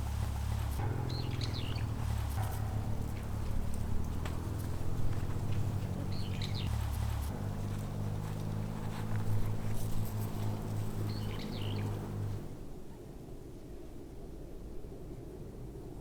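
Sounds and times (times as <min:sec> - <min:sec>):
bird chirping: 0:00.0 - 0:03.4, 0:04.6 - 0:07.3, 0:10.4 - 0:12.4
steady low hum: 0:00.0 - 0:12.8.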